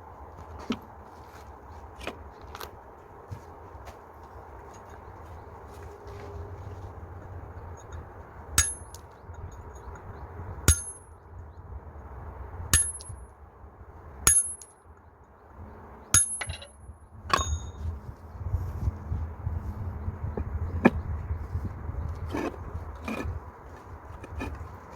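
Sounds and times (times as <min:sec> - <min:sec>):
bricks clinking together: 0:24.2 - 0:24.6.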